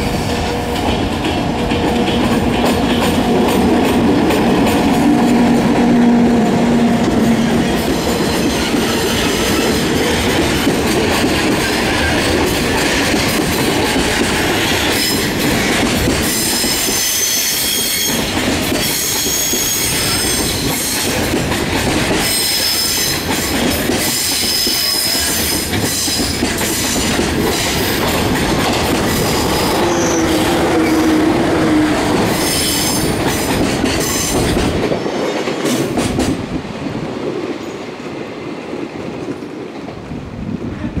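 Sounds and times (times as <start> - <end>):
electric train passing: 0.0 - 41.0
freight train wheels on rails: 0.0 - 41.0
high-pitched wheel squeal: 29.6 - 31.2.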